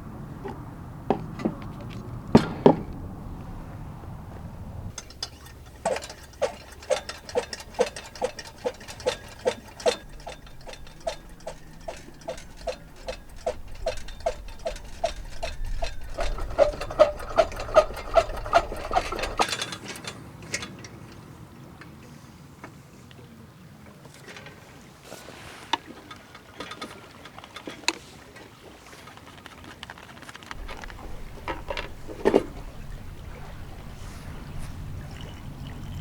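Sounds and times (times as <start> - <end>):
light ringing knocks: 0.4 - 3.5.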